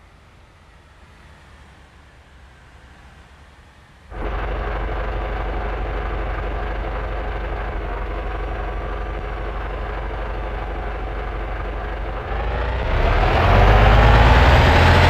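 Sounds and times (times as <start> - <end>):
bus engine rumbling: 3.8 - 15.0.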